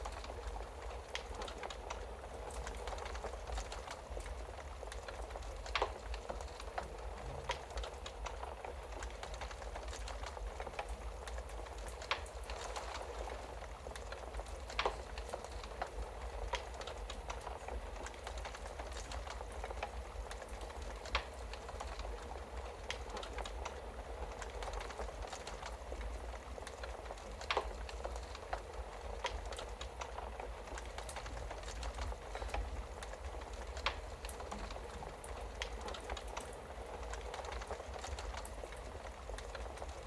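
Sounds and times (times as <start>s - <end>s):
fire popping: 0.0s - 40.0s
wood fire crackling: 0.0s - 40.0s.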